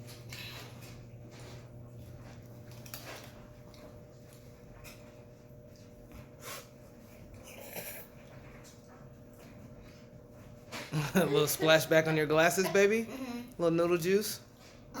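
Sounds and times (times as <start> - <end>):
people slurping noodles: 6.4 - 8.2.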